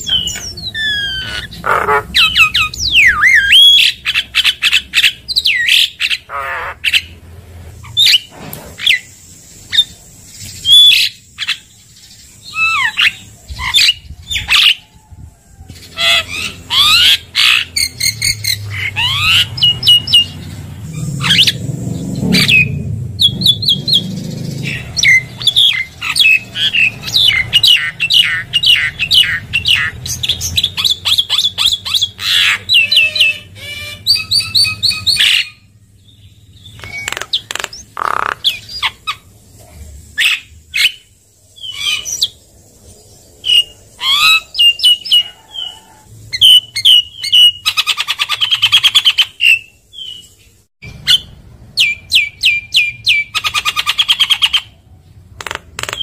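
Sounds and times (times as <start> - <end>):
myna bird singing: 0.0 - 56.0.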